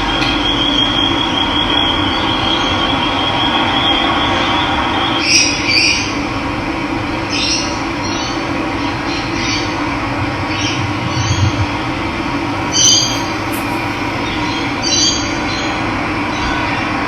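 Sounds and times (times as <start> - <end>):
high bird chirps: 12.7 - 14.7.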